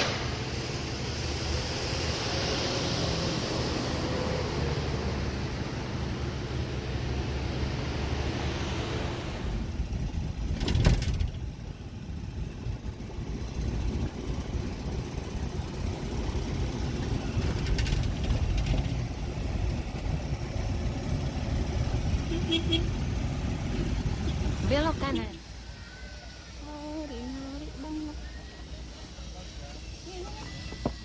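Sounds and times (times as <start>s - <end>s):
hiss: 0.0s - 4.8s, 25.4s - 31.0s
vehicle engine rumbling: 0.0s - 31.0s
sharp clatter: 10.4s - 11.6s, 17.3s - 19.2s.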